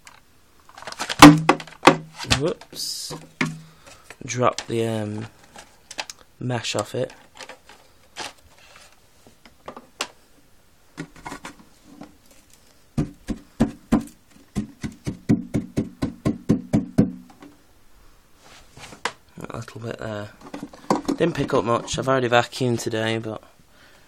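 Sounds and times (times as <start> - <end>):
knocking on plastic vacuum parts: 1.2 - 2.1, 3.2 - 3.7, 13.0 - 17.5, 20.4 - 21.5.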